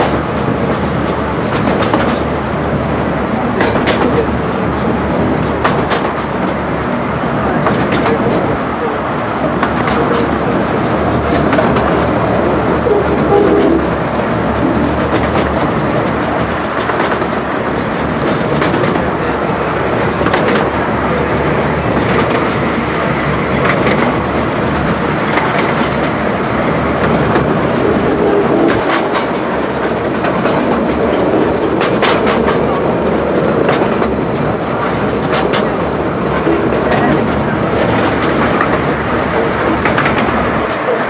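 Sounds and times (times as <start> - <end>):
wheel clicks over rail joints: 0.0 - 2.4, 14.6 - 19.3, 27.0 - 32.8, 33.4 - 41.0
miniature train rolling: 7.4 - 41.0.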